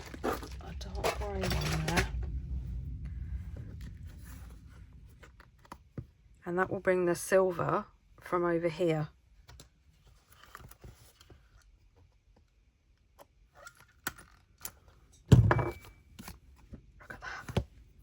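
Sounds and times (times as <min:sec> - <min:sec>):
paper and metal rustling: 0:00.0 - 0:02.3, 0:09.9 - 0:11.7.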